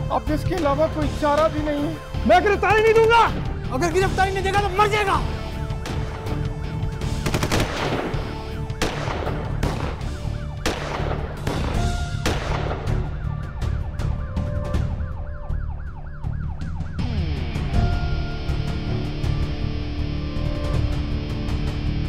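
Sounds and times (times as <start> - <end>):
pistol gunshots: 7.2 - 13.1
police siren wailing: 9.9 - 10.6, 12.8 - 19.4.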